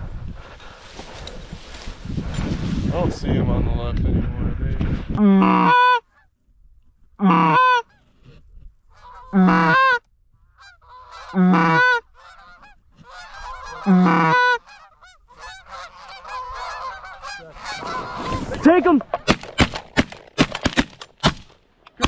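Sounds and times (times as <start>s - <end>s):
goose honking close: 7.2s - 8.0s, 8.9s - 19.6s
flock of geese honking: 8.9s - 19.2s.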